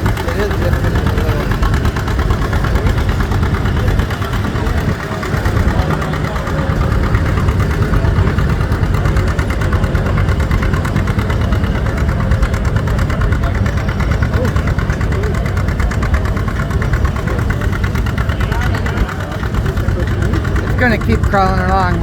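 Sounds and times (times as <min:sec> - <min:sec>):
tractor engine pulling under load: 0:00.0 - 0:22.0.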